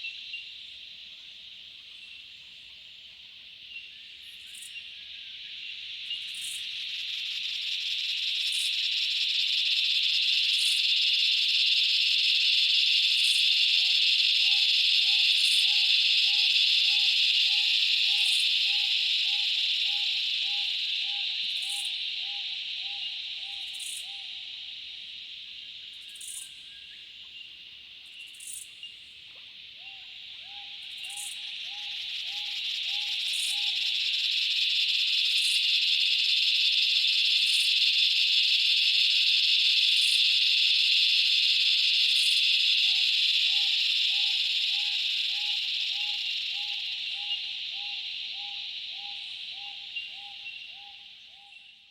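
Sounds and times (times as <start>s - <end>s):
cicadas hissing drone: 0.0s - 51.9s
lower pulsing cicada call: 0.0s - 51.9s.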